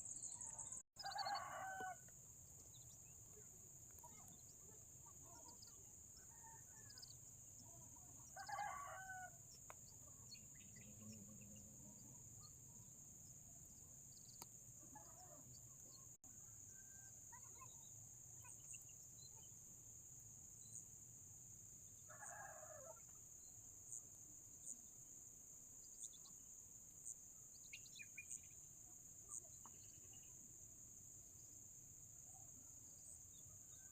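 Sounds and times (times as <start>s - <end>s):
distant rooster crowing: 1.0s - 2.1s, 8.4s - 9.4s.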